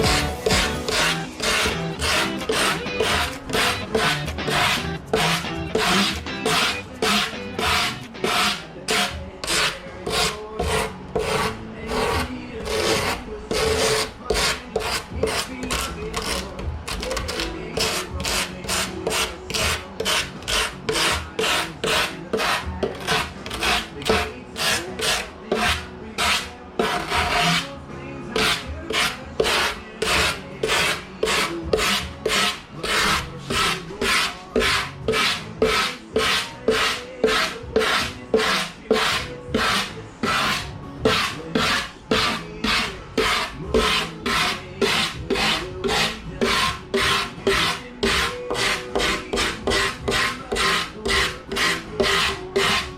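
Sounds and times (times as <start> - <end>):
rasping scraping on foam: 0.0 - 52.9.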